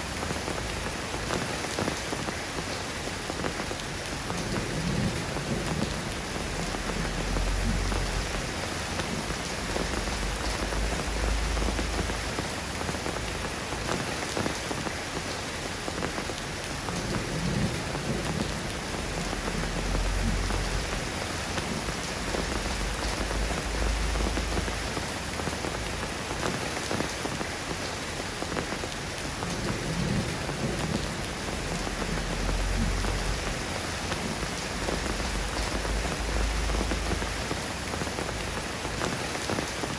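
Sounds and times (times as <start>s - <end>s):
steady rain falling: 0.0s - 39.9s
low rumbles: 4.6s - 13.7s, 17.6s - 26.2s, 29.8s - 38.9s.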